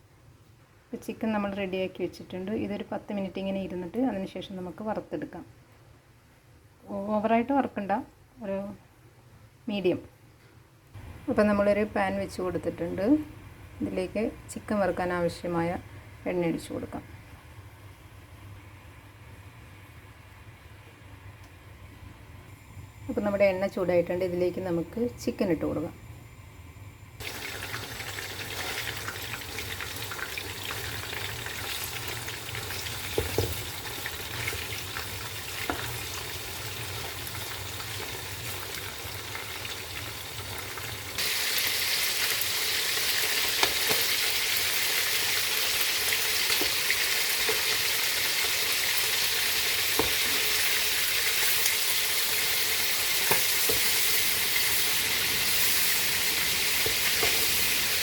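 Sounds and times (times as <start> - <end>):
chicken sizzling in hot oil: 27.2 - 58.0.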